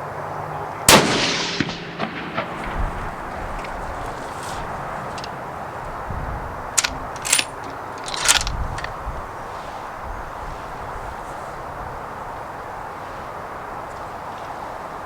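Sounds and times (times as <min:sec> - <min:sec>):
rifle bolt clicks and scrapes: 0:06.8 - 0:09.0.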